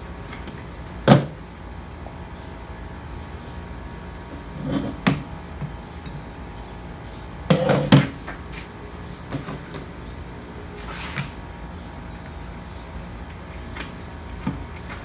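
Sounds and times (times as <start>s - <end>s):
tools and metal parts clattering: 10.8s - 12.7s.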